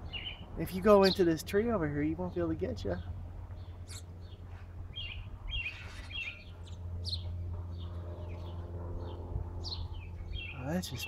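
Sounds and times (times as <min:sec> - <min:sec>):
birds chirping: 0:00.0 - 0:11.0
steady low hum: 0:00.0 - 0:11.0.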